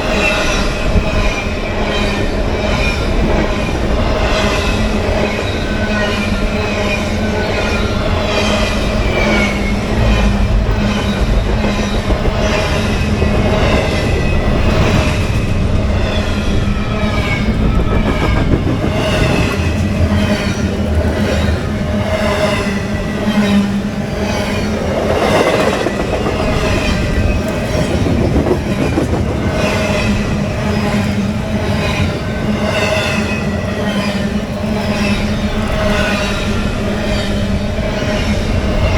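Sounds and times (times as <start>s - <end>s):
freight train rumbling past: 0.0s - 38.9s
wheels clicking over rail joints: 17.1s - 34.7s.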